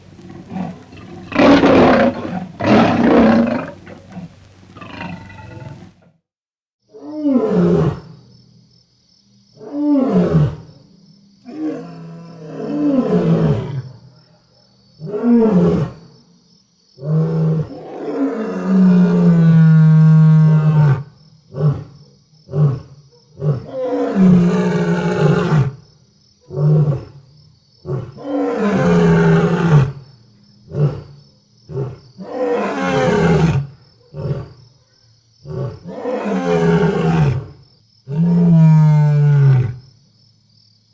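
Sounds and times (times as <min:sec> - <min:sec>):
lions roaring: 0:00.1 - 0:06.1, 0:35.5 - 0:39.8.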